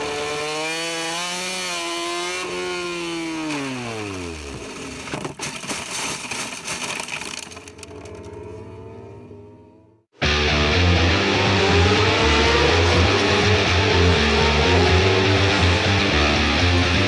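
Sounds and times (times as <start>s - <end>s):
racing motorcycle engine revving: 0.0s - 4.6s, 8.1s - 17.0s
rough scraping and clattering: 4.8s - 8.2s.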